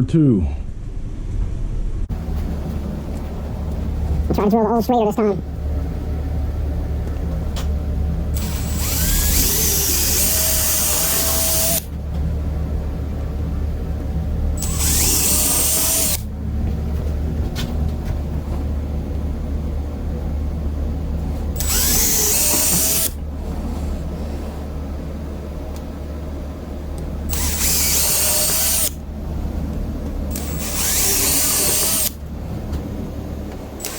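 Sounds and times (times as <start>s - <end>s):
electric drill hum: 8.3s - 11.9s, 14.6s - 16.3s, 21.5s - 23.2s, 27.3s - 29.0s, 30.3s - 32.2s
drill bit cutting steel: 8.4s - 11.9s, 14.6s - 16.2s, 21.6s - 23.2s, 27.3s - 29.0s, 30.3s - 32.2s.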